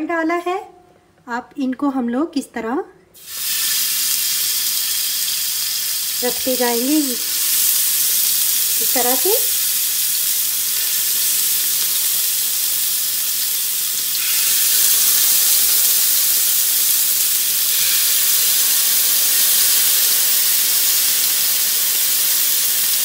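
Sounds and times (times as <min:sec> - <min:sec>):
skewers sizzling in hot oil: 0:03.2 - 0:23.0.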